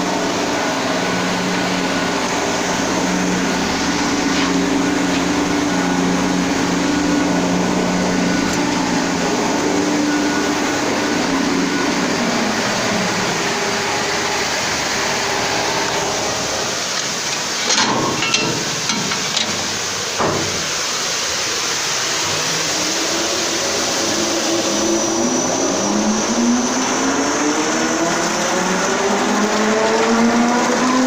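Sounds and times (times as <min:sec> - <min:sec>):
motor whine rising in pitch: 0:00.0 - 0:16.9, 0:21.9 - 0:31.0
washing machine running: 0:00.0 - 0:31.0
knocks: 0:17.7 - 0:20.7.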